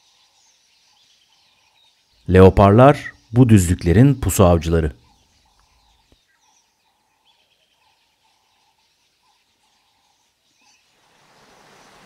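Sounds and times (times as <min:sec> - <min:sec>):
faint bird chirps: 0:00.0 - 0:04.4, 0:05.0 - 0:12.0.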